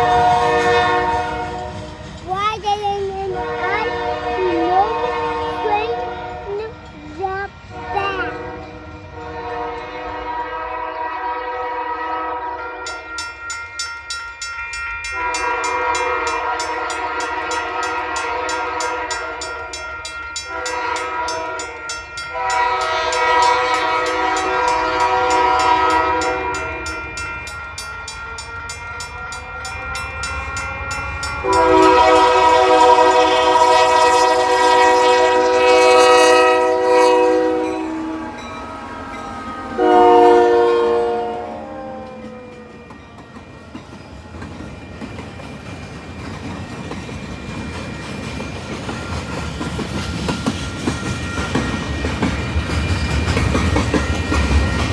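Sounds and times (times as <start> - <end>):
locomotive air horn blasts: 0.0 - 2.0, 3.4 - 6.5, 7.7 - 12.9, 15.2 - 19.4, 20.5 - 27.0, 31.4 - 42.3
train wheels clacking over rail joints: 41.8 - 54.9.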